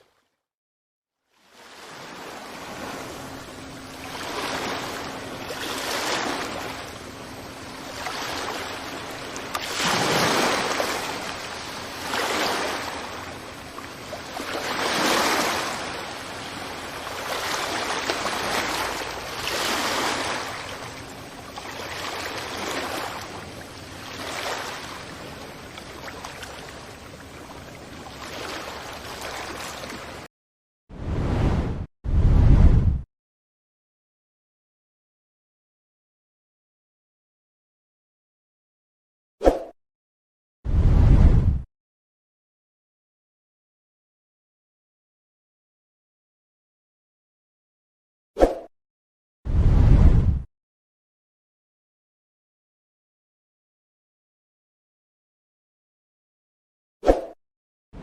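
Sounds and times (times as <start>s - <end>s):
ocean waves breaking on beach: 1.4s - 30.3s.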